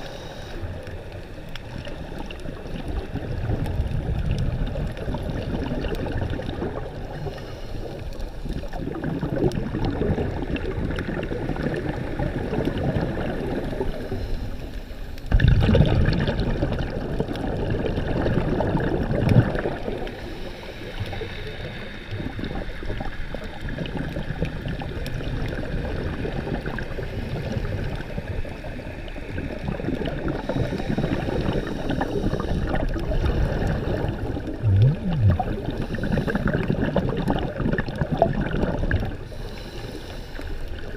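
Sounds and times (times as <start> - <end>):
water gurgling against microphone: 0.0 - 40.9.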